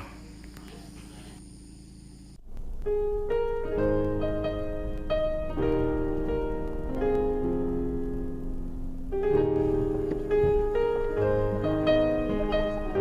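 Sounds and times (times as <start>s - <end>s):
steady low hum: 0.0s - 13.0s
piano music: 2.7s - 13.0s.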